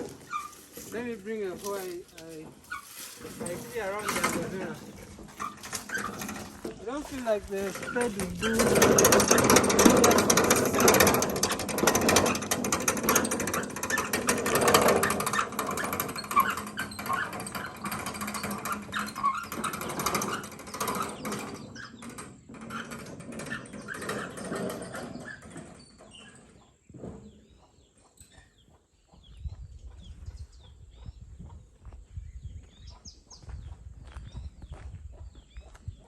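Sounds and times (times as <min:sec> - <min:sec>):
dense rustling and crunching: 0:00.0 - 0:25.8.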